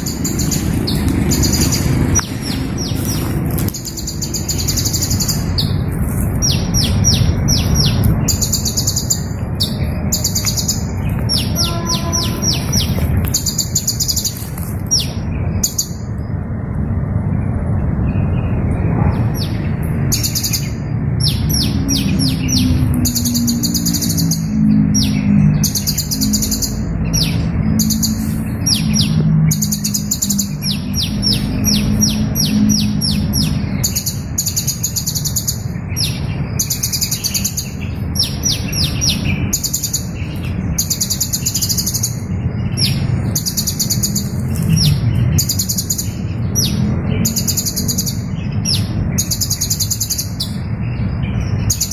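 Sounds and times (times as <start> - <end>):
small bird chirping: 0.0 - 16.4, 18.1 - 51.9
steady low rumble: 0.0 - 51.9.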